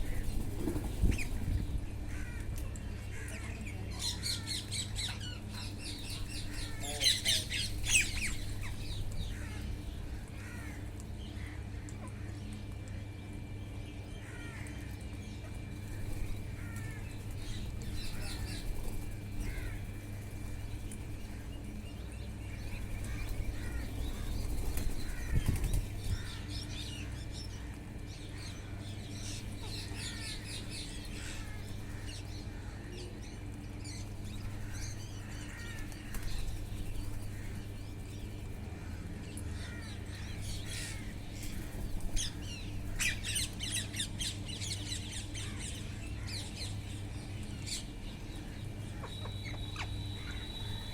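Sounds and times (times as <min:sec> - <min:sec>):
wings flapping: 0:00.0 - 0:01.7, 0:15.8 - 0:21.8, 0:22.6 - 0:26.3, 0:35.5 - 0:38.6, 0:40.6 - 0:43.5
parrots chirping and squawking: 0:03.1 - 0:09.7, 0:16.0 - 0:19.9, 0:22.6 - 0:27.8, 0:29.2 - 0:32.9, 0:39.6 - 0:47.0.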